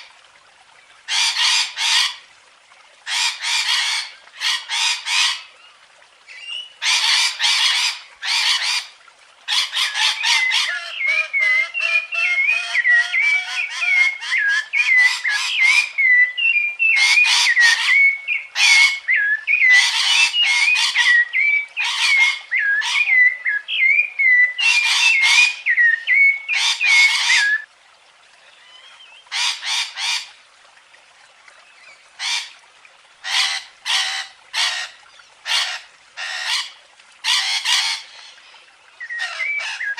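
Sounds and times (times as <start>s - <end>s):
birds squawking harshly: 3.1s - 5.5s, 6.4s - 8.9s, 9.5s - 15.9s, 21.8s - 23.3s, 24.6s - 27.6s, 29.3s - 30.3s, 32.2s - 32.6s, 33.2s - 39.9s
warbling whistled bird song: 10.2s - 27.7s, 39.0s - 39.9s.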